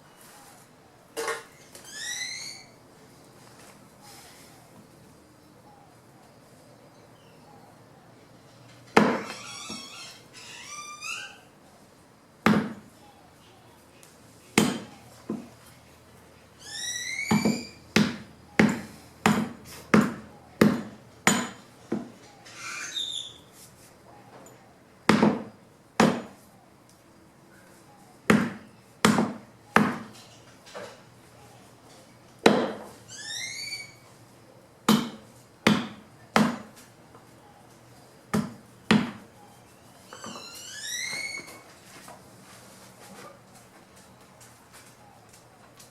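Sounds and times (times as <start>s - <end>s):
chopping strikes on wood: 9.0s - 9.2s, 12.5s - 12.9s, 14.6s - 15.5s, 17.4s - 22.1s, 25.1s - 26.4s, 28.3s - 30.1s, 32.4s - 32.9s, 34.9s - 36.8s, 38.3s - 39.3s.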